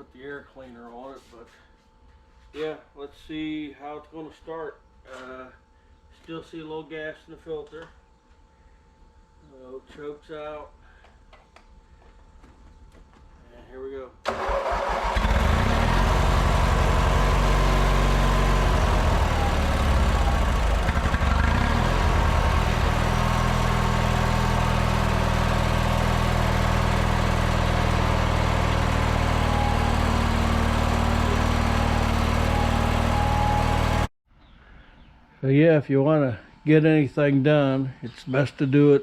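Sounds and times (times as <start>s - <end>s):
small gasoline engine idling: 14.3s - 34.1s.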